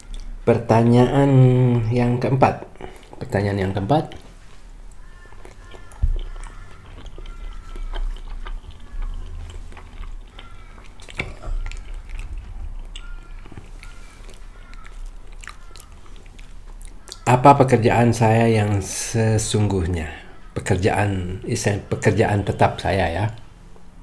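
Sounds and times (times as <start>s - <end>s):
person chewing: 0.0s - 0.4s, 2.7s - 3.2s, 4.1s - 17.3s.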